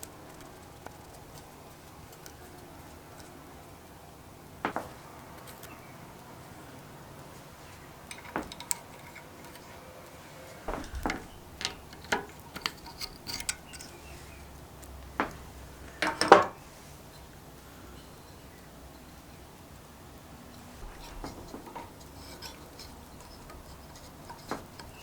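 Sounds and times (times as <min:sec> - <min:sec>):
small metal parts clinking: 0:08.0 - 0:09.8, 0:10.6 - 0:14.5, 0:15.2 - 0:16.6, 0:20.8 - 0:25.0
knocks: 0:10.7 - 0:12.3.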